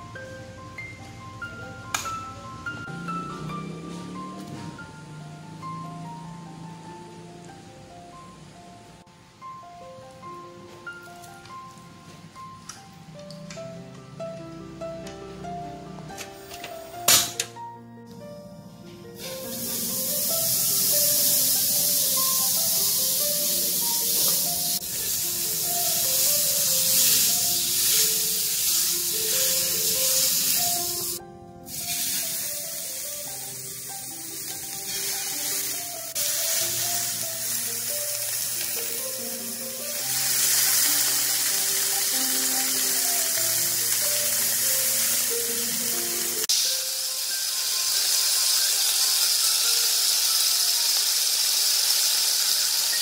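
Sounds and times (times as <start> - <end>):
background music simple melody: 0.0 - 53.0
meat skewers sizzling on grill pan: 19.2 - 53.0.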